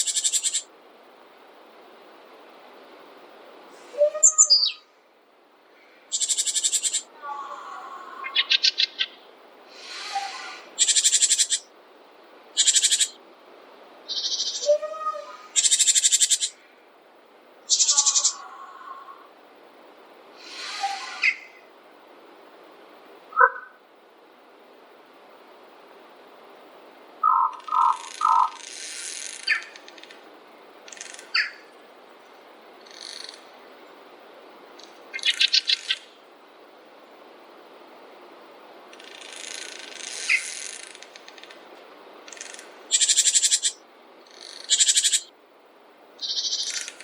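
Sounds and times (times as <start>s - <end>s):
steady hiss of wind or water: 0.0s - 47.0s
soft buzzy bird call: 6.1s - 11.7s, 17.7s - 19.2s, 20.4s - 21.6s, 27.2s - 29.8s
birds rattling trills: 9.8s - 11.7s, 14.1s - 16.6s, 17.7s - 18.5s, 27.2s - 30.1s, 42.3s - 45.3s, 46.2s - 47.0s.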